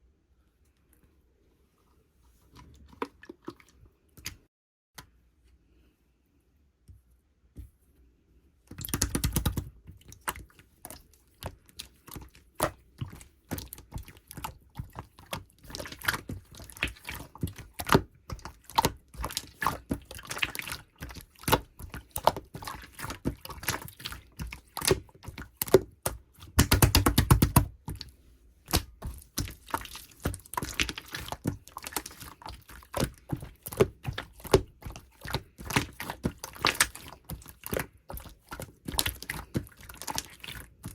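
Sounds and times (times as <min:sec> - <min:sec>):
sticky clicks and bubble pops: 0:08.8 - 0:09.7, 0:25.6 - 0:28.0, 0:28.7 - 0:40.9.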